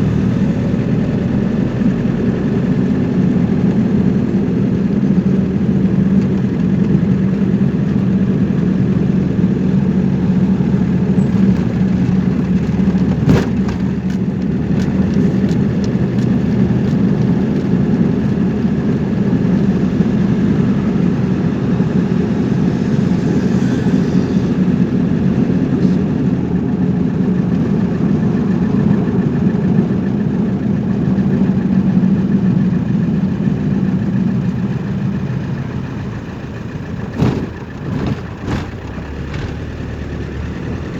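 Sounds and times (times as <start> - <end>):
car engine drone: 0.0 - 40.9
road noise: 0.0 - 40.9.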